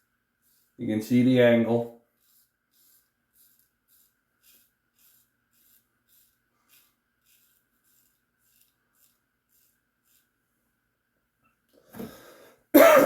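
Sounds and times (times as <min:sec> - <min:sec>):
razor scraping stubble: 0:00.0 - 0:10.4.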